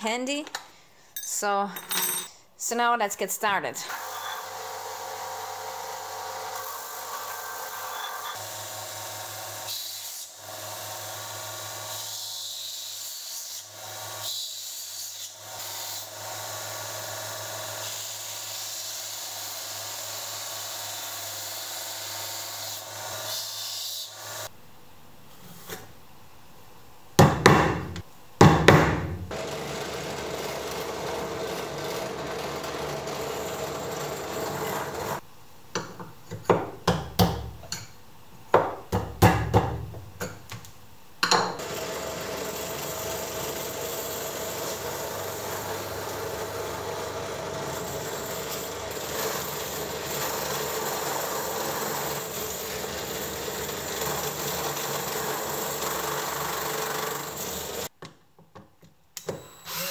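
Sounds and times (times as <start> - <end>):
steady hand tool noise: 29.3 - 35.2, 41.6 - 57.9.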